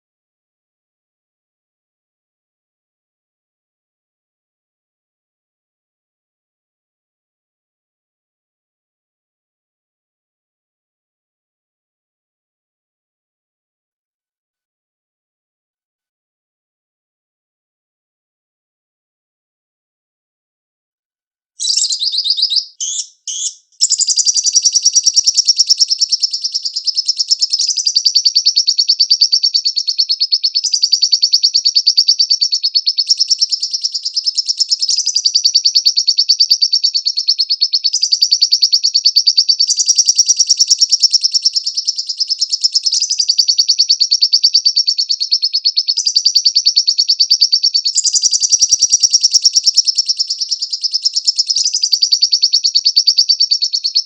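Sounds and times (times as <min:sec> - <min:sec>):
lovebird chattering trill: 0:21.6 - 0:54.0.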